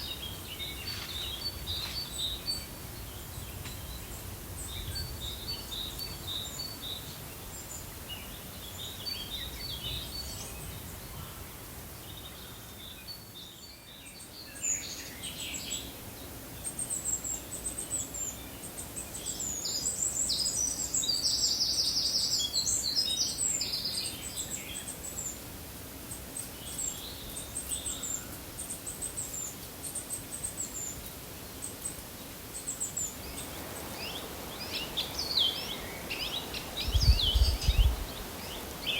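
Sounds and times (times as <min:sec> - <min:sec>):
background hiss: 0:00.0 - 0:38.9
birds chirping and singing: 0:32.7 - 0:38.9.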